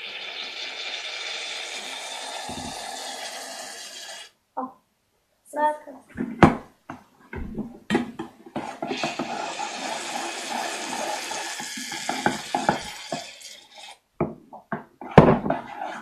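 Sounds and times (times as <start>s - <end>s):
aerosol can hissing: 0.1s - 4.3s, 8.8s - 14.0s.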